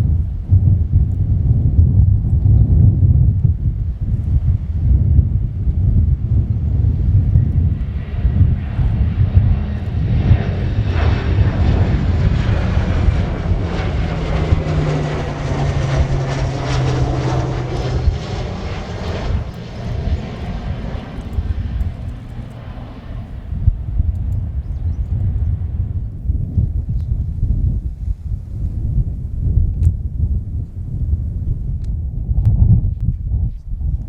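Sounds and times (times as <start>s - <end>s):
jet flying past: 6.5s - 24.6s.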